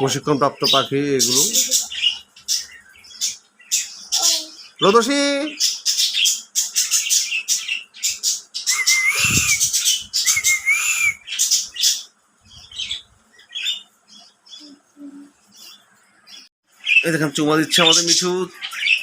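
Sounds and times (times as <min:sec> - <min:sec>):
parrots squawking and screeching: 0:05.5 - 0:13.9
short arched whistles: 0:08.7 - 0:11.3.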